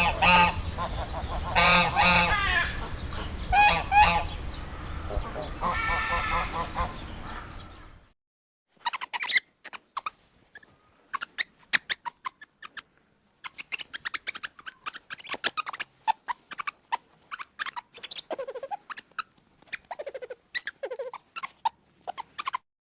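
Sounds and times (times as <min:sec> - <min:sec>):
small animal clicking squeaks: 0:08.8 - 0:22.7.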